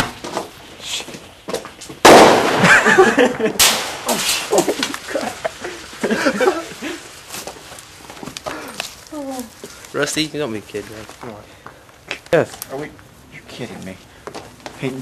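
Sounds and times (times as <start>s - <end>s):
firework crackling: 0.0s - 13.1s
firework bangs: 1.8s - 8.8s.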